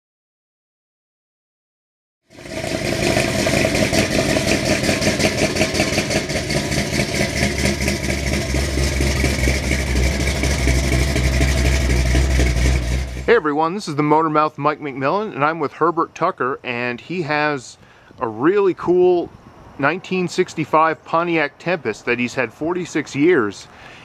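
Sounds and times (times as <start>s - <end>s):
car engine idling: 2.3s - 13.9s.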